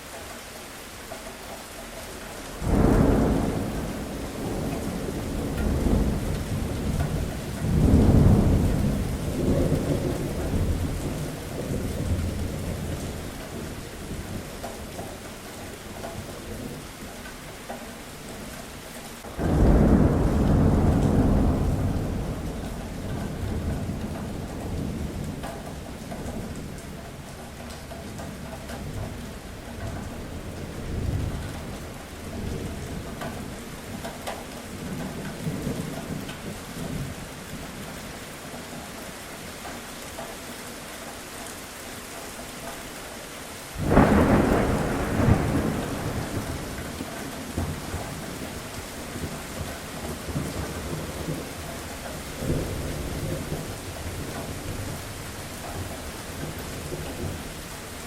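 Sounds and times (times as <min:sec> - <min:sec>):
steady rain: 0:00.0 - 0:58.0
loud thunderclap: 0:02.6 - 0:13.2, 0:19.4 - 0:25.4, 0:43.8 - 0:51.6
rolling thunder: 0:02.6 - 0:14.5, 0:19.2 - 0:26.8, 0:43.8 - 0:58.0.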